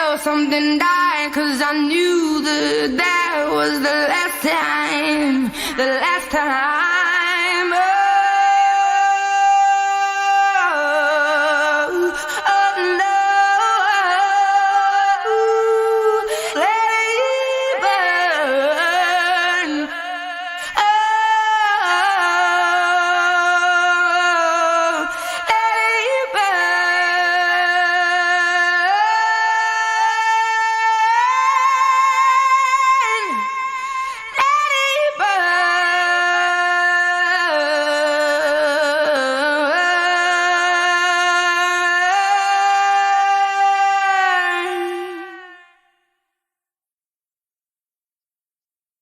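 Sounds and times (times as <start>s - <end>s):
women singing without words: 0.0s - 46.0s.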